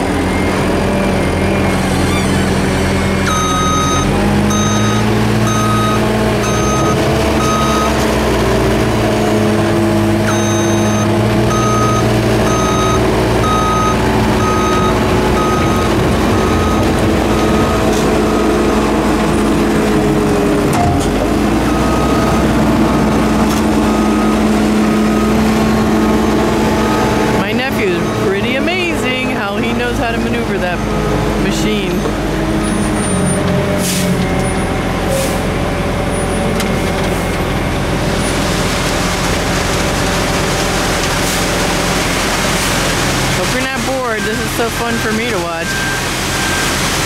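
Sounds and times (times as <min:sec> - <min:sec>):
diesel machinery running: 0:00.0 - 0:47.0
backup alarm beeping: 0:03.2 - 0:08.0, 0:10.2 - 0:18.8, 0:21.6 - 0:32.1, 0:43.4 - 0:46.8.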